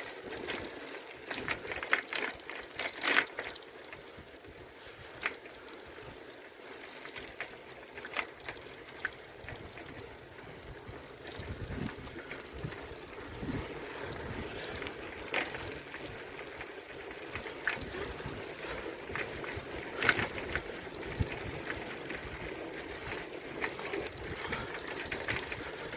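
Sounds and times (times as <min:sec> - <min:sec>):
bicycle clicks and rattles: 0:00.0 - 0:25.9
bicycle riding noise: 0:00.0 - 0:25.9.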